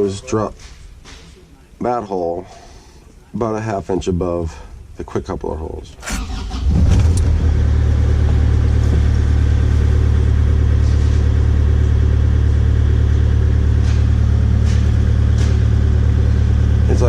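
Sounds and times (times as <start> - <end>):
diesel engine idling: 6.0 - 17.0.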